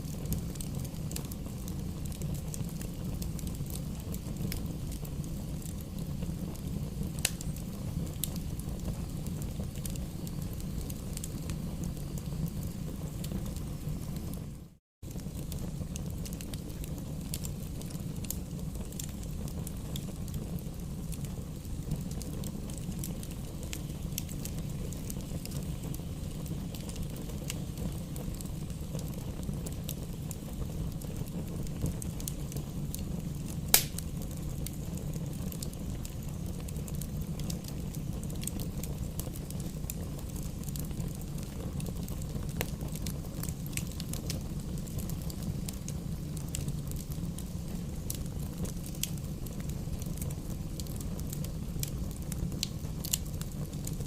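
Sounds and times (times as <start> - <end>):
campfire flames rumbling: 0.0 - 54.0
fire crackling: 0.0 - 54.0
loud pop from fire: 33.5 - 35.3.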